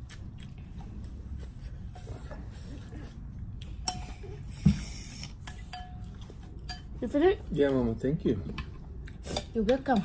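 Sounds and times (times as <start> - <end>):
tableware clinking: 5.5 - 7.0.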